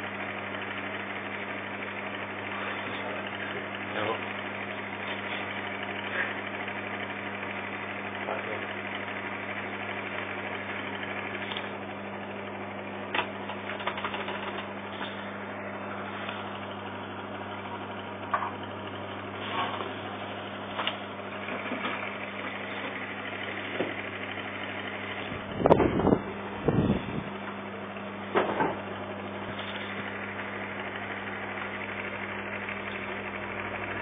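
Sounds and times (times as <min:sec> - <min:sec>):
microwave oven hum: 0:00.0 - 0:34.0
loud clatter: 0:13.2 - 0:15.1.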